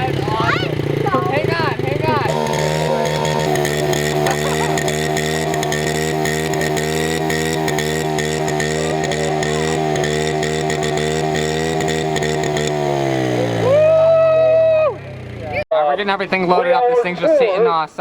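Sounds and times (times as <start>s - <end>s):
pit bike engine revving: 0.0s - 15.6s.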